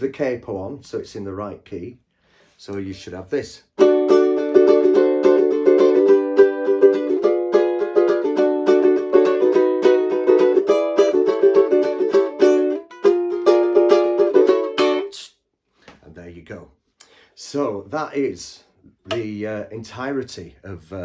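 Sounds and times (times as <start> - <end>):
ukulele strumming: 3.8 - 15.1.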